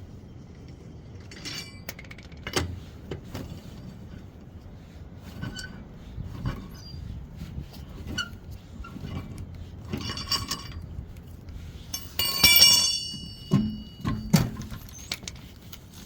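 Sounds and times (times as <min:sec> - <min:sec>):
metal parts clinking: 0:11.9 - 0:15.4.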